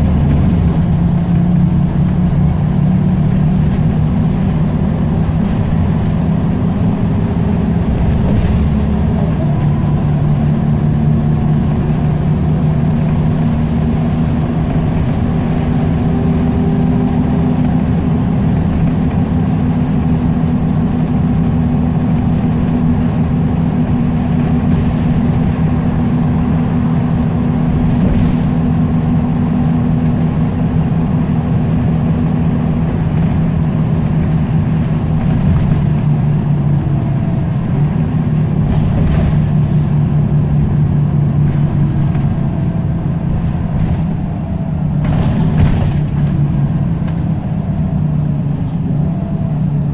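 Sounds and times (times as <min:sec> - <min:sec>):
bus diesel engine droning: 0:00.0 - 0:49.9.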